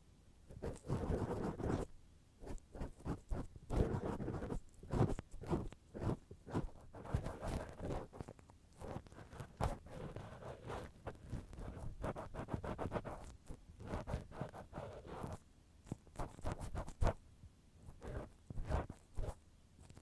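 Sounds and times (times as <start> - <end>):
cotton swab scratching microphone: 0.5 - 17.2, 17.9 - 20.0.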